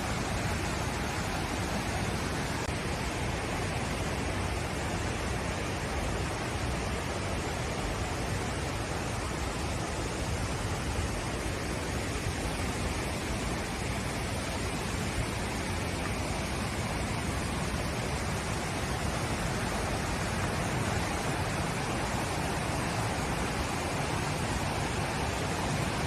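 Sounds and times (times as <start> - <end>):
falling water rushing: 0.0 - 26.0.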